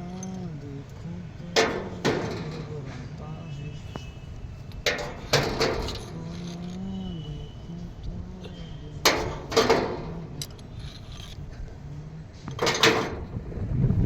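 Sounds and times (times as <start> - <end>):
metal tools clanking: 0.0 - 4.0, 4.6 - 13.4
low steady hum: 0.0 - 14.0
sharp knocks: 1.5 - 3.0, 9.1 - 10.7.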